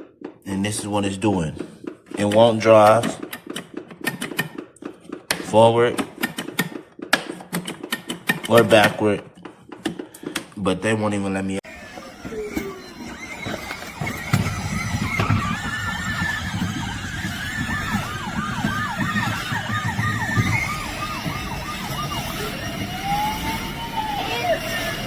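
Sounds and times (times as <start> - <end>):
electronic toy police siren: 11.6 - 25.0.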